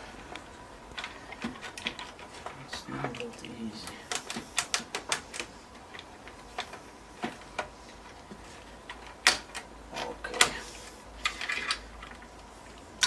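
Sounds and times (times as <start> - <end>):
clicks and knocks inside computer case: 8.3 - 10.6.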